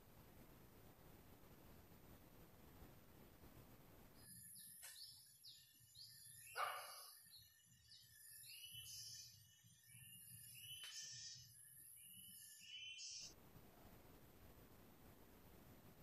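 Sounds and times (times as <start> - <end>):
faint hiss: 0.0 - 4.2
bird chirping: 4.1 - 13.4.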